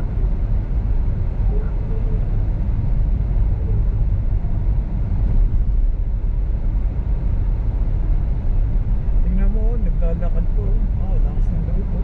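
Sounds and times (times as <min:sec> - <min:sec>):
car engine rumble from cabin: 0:00.0 - 0:12.0
tyres on snowy road: 0:00.0 - 0:12.0.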